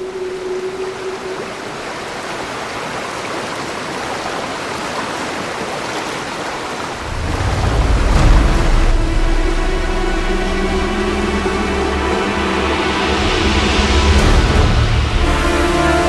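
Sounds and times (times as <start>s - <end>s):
rain hissing: 6.9s - 16.0s
music tones: 7.0s - 16.0s
thunder rumbling: 7.0s - 16.0s.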